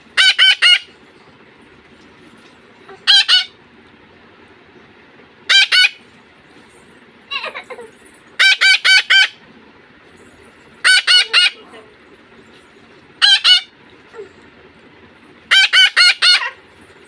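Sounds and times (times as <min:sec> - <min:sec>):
parrot squawking: 0:00.1 - 0:01.0, 0:02.9 - 0:03.6, 0:05.5 - 0:06.1, 0:08.4 - 0:09.4, 0:10.8 - 0:11.9, 0:13.2 - 0:13.8, 0:15.5 - 0:16.6.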